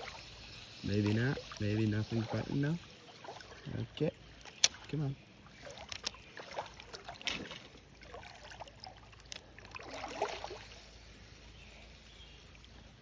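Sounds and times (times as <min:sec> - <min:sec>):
faint creek water running: 0:00.0 - 0:13.0
light clicks and rustles: 0:05.6 - 0:06.2.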